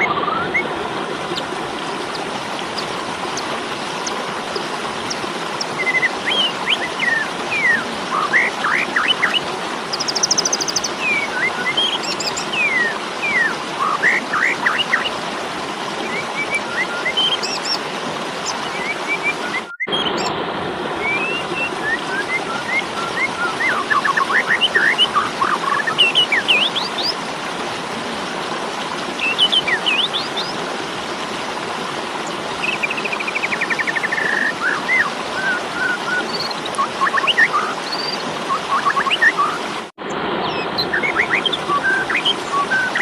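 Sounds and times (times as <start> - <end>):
starling chirps and whistles: 5.8 - 15.1, 16.1 - 17.8, 18.4 - 20.3, 21.0 - 27.2, 29.2 - 30.5, 32.6 - 39.6, 40.5 - 43.0.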